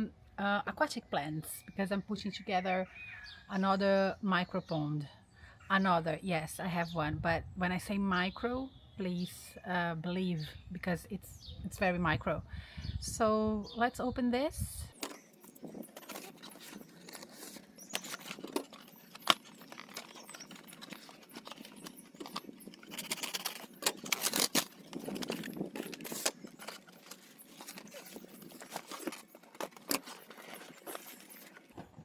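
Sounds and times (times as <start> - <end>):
package rustling and crinkling: 14.9 - 31.9.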